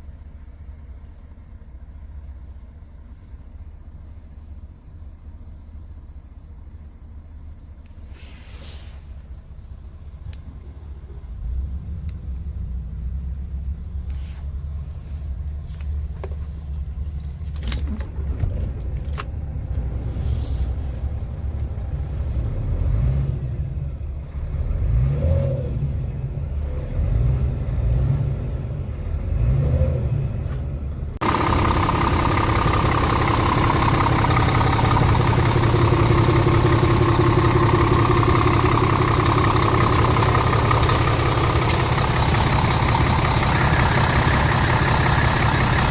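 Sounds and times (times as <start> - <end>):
high engine whine: 31.2 - 45.9
truck engine running: 31.2 - 45.9.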